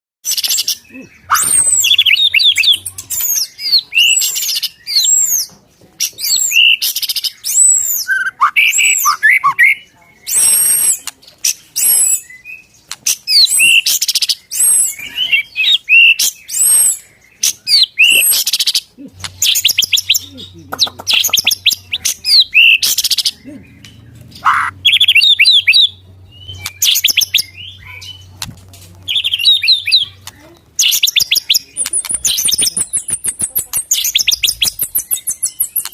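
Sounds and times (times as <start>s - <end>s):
bird singing whistles and trills: 0.2s - 5.5s, 6.1s - 28.4s, 29.1s - 30.1s, 30.8s - 35.9s.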